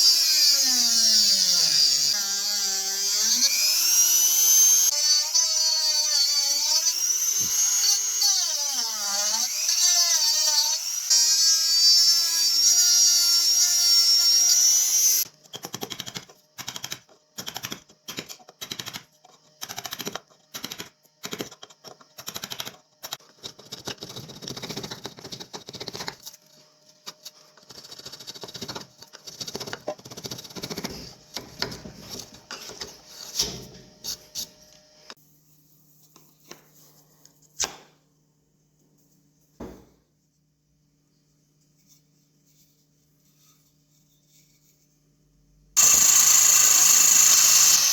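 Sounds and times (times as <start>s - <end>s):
power tool whining: 0.0s - 15.2s, 45.8s - 47.9s.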